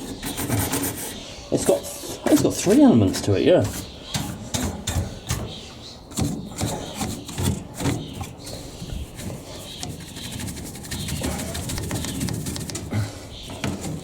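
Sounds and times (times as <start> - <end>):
knocks and scrapes on dryer panels: 2.3 - 14.0.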